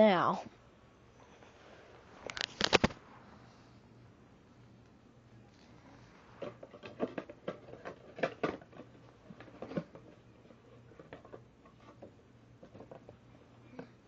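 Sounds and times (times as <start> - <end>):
plastic toy packaging clicks and knocks: 6.4 - 10.2.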